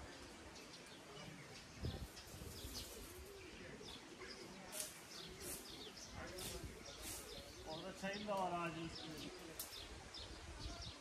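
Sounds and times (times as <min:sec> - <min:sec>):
birds calling: 0:00.0 - 0:11.0
sharp rustle: 0:01.9 - 0:03.4, 0:04.7 - 0:07.6.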